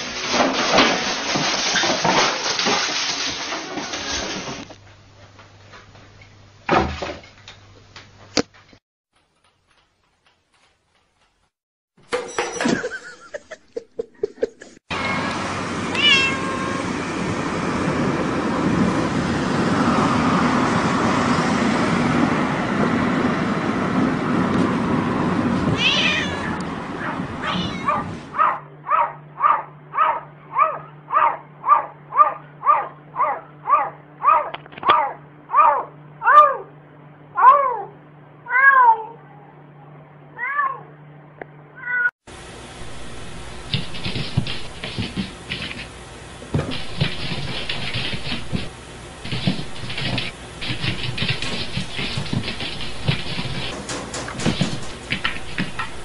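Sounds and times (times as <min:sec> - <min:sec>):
cat meowing: 0:15.9 - 0:16.9, 0:25.8 - 0:28.1, 0:38.5 - 0:39.2.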